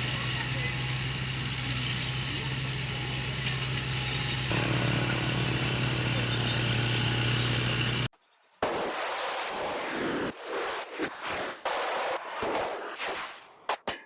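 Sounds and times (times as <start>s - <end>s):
heavy machine diesel engine running: 0.0s - 8.1s.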